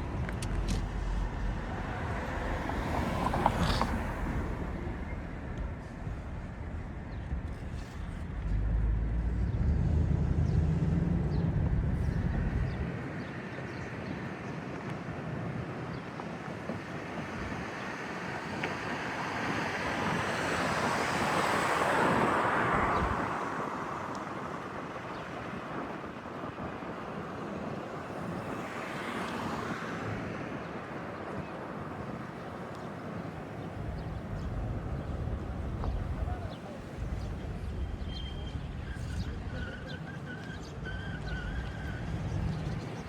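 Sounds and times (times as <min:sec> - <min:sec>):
vehicle passing: 0:00.0 - 0:06.0, 0:08.4 - 0:12.8
wind buffeting microphone: 0:00.0 - 0:43.0.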